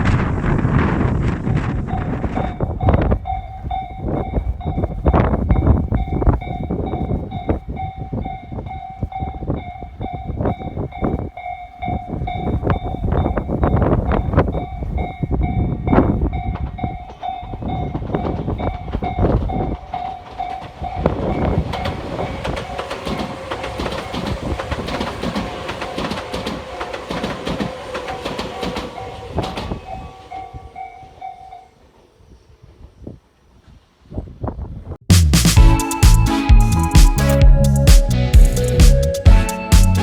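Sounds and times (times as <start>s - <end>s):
wind buffeting on microphone: 0.0s - 30.8s, 32.6s - 35.0s
train wheels clattering over rails: 0.0s - 31.5s
level-crossing bell dinging: 2.4s - 31.8s, 35.6s - 40.0s.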